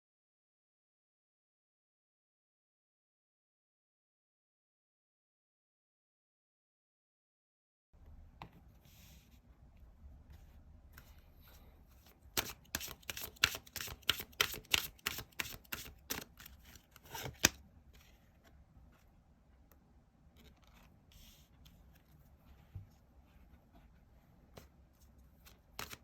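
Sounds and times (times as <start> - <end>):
cards being shuffled: 12.0 - 18.1, 25.4 - 26.0
faint card rustles: 20.3 - 26.0.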